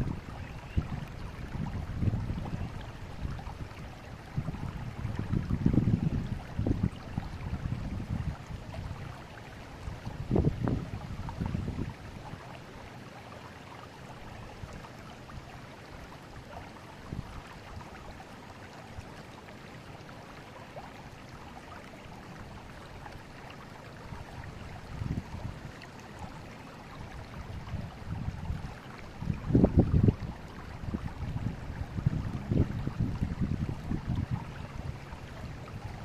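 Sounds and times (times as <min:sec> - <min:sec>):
wind buffeting microphone: 0:00.0 - 0:09.2, 0:09.8 - 0:12.4, 0:24.1 - 0:25.8, 0:27.0 - 0:36.0
river water rushing: 0:00.0 - 0:36.0.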